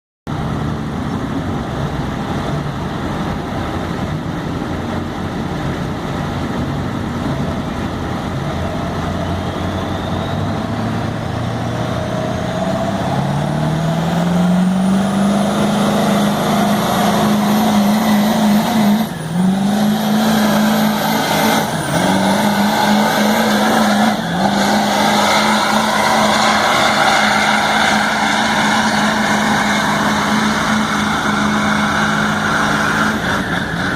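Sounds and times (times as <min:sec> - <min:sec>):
diesel truck engine pulling hard: 0:00.3 - 0:33.9
turbo whistle: 0:09.1 - 0:10.9.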